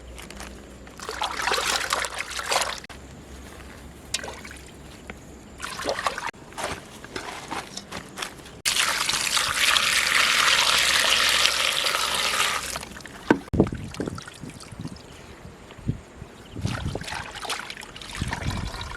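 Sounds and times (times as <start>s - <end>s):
water running: 8.6s - 15.1s
handling knocks: 13.2s - 13.5s.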